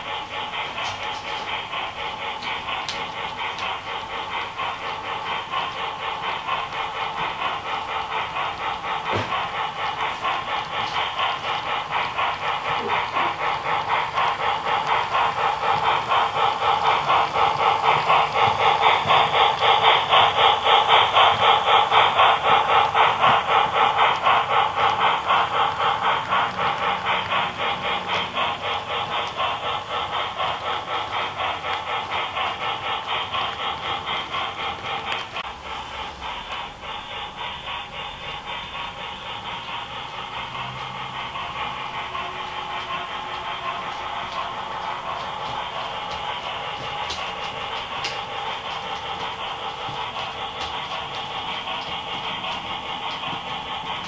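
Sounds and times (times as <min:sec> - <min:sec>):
model train engine beat: 0:00.0 - 0:54.0.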